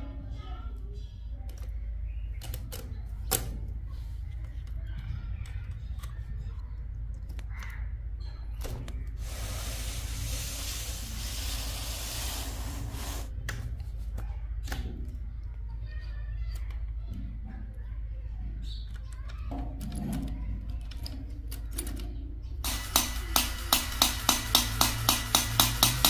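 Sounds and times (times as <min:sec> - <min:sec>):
steady low hum: 0:03.1 - 0:15.7
hissing whirr: 0:09.2 - 0:13.4.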